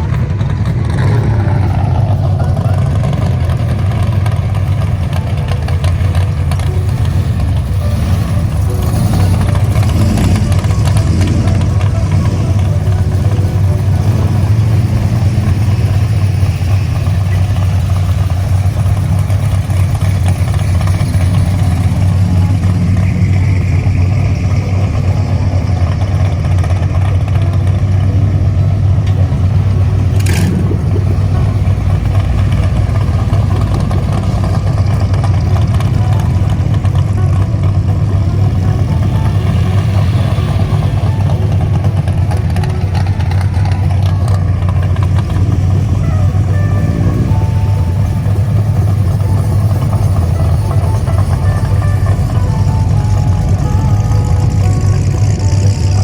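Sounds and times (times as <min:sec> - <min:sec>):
vehicle engine idling: 0:00.0 - 0:56.0.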